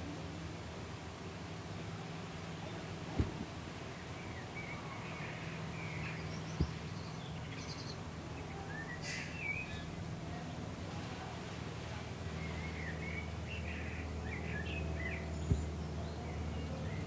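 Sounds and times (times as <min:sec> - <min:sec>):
steady low hum: 0:00.0 - 0:08.7
birdsong chirps and warbles: 0:00.0 - 0:17.0.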